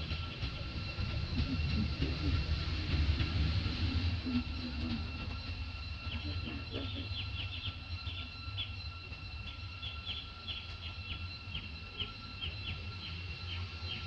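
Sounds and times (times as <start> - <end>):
bird chirping: 6.0 - 14.0.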